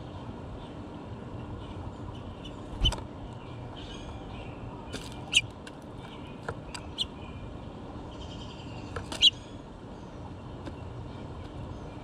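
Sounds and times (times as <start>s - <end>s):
faint birdsong: 0.0s - 12.0s
low outdoor rumble: 0.0s - 12.0s
sharp bird chirps: 2.4s - 3.0s.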